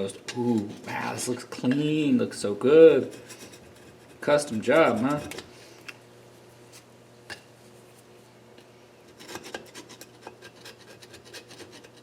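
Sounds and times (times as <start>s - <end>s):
steady low hum: 0.0s - 12.0s
scraping on metal engine parts: 9.1s - 12.0s.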